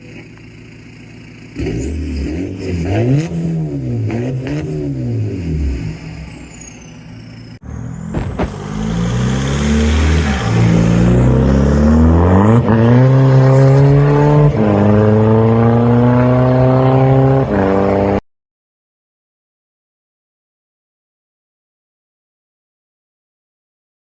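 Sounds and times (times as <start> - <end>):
car engine accelerating: 0.0 - 18.2.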